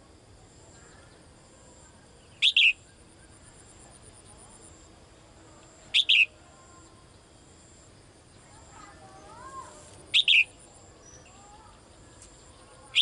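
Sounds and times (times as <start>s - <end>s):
songbird double-note calls: 2.3s - 2.9s, 5.9s - 6.4s, 10.1s - 11.5s.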